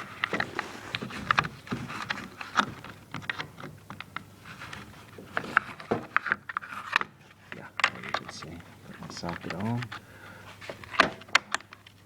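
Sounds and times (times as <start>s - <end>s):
hands handling hard objects: 0.0s - 12.0s.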